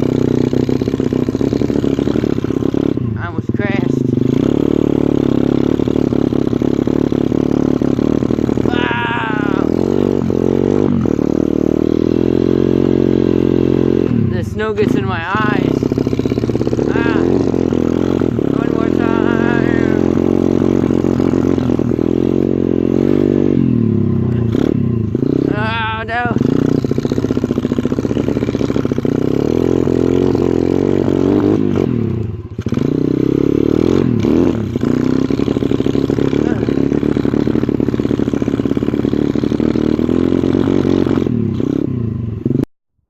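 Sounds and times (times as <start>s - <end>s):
motorbike engine under throttle: 0.0s - 43.0s.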